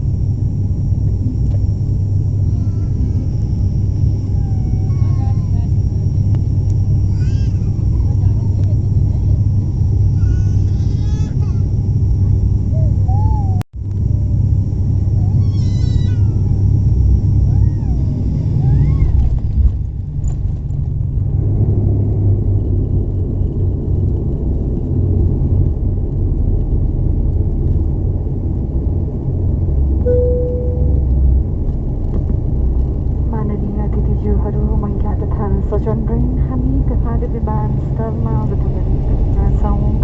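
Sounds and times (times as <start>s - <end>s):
turboprop engines rumbling: 0.0s - 40.0s
brief steady tone: 30.0s - 31.4s.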